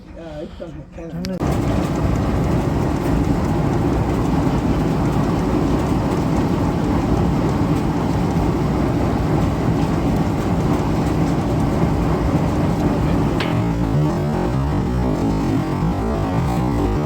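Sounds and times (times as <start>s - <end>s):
sewing machine running: 1.4s - 17.0s.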